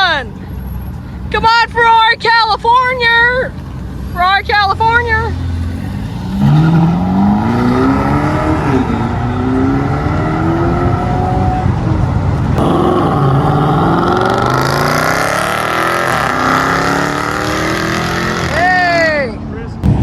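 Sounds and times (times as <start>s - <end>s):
car engine accelerating hard: 5.2s - 19.0s.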